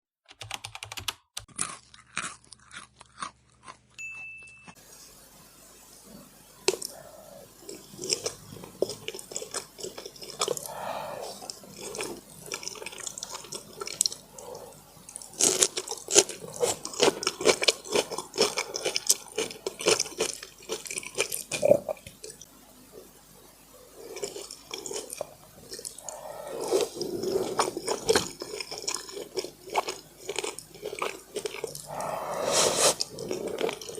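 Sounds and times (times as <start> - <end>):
person chewing food: 1.4 - 4.8, 7.6 - 22.5, 24.0 - 33.9.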